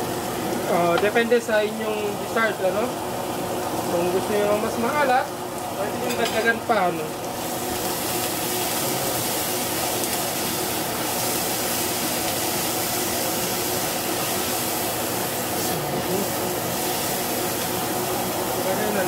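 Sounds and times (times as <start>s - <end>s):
electric fan whirring: 0.0s - 19.0s
food sizzling in a saucepan: 0.0s - 19.0s.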